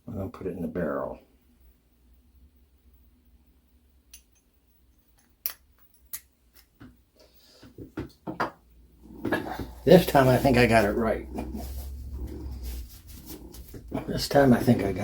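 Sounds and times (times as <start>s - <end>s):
faint low hum: 8.7s - 15.0s.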